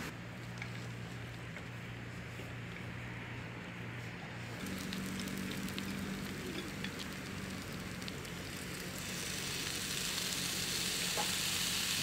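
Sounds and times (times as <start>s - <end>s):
small pops and crackles: 4.6s - 9.0s
food sizzling: 4.6s - 12.0s.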